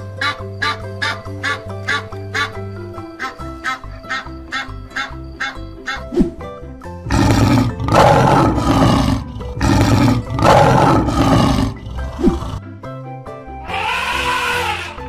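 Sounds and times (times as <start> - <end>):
background music: 0.0 - 15.0
lion roaring: 7.1 - 12.6.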